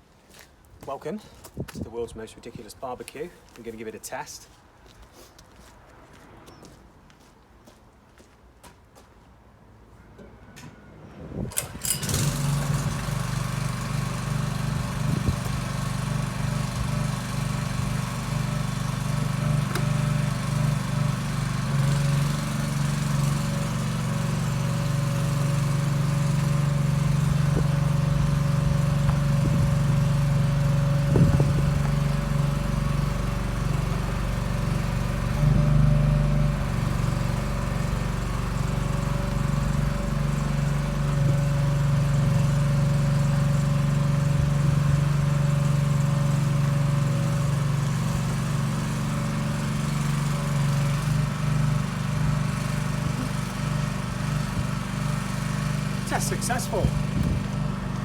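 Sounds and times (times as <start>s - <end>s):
truck engine running: 11.7s - 58.0s.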